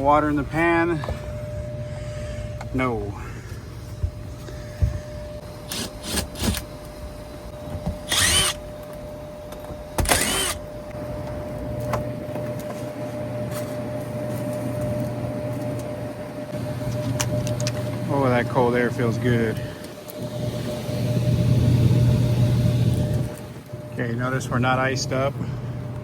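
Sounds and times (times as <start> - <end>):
air handler hum: 0.0 - 26.0
cordless drill running: 5.6 - 6.6, 8.1 - 8.6, 10.0 - 10.7.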